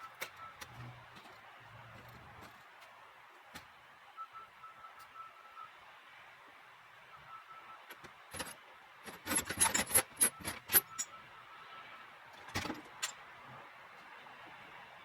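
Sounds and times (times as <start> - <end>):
chain rattling and clinking: 8.3 - 11.1.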